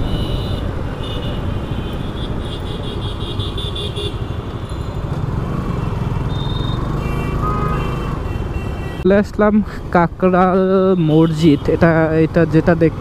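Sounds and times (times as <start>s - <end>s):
motorcycle engine and road rumble: 0.0s - 13.0s.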